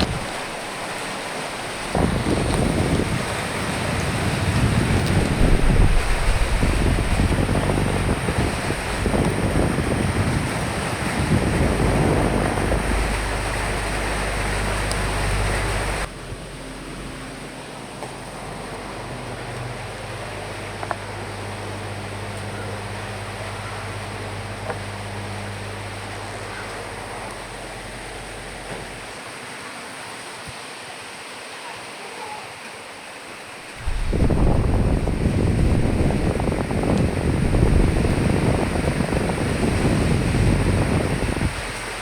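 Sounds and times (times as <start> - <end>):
gusty wind: 0.0 - 16.5, 33.8 - 42.0
rain hiss: 0.0 - 42.0.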